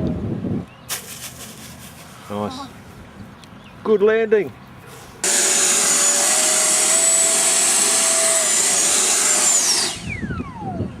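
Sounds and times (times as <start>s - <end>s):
electric ducted fan whine: 5.2s - 11.0s.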